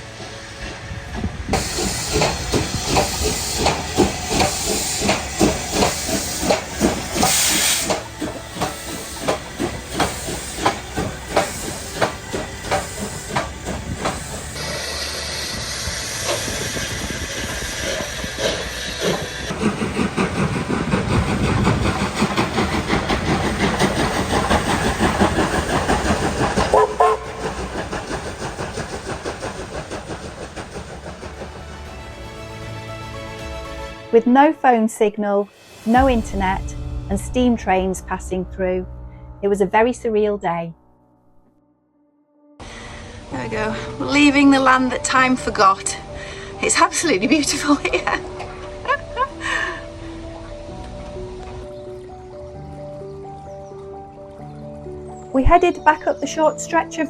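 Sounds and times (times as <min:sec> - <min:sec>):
steam hissing: 0:00.0 - 0:32.2
steam locomotive chuffing: 0:00.0 - 0:34.0, 0:42.6 - 0:52.4.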